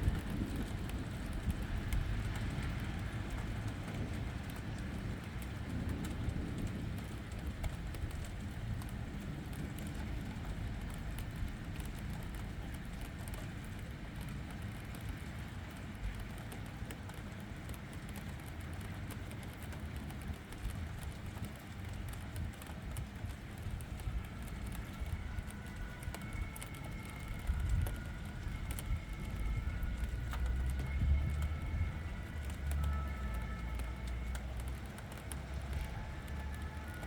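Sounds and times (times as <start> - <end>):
low thunder rumble: 0.0 - 14.8, 23.0 - 37.0
steady rain: 0.0 - 37.0.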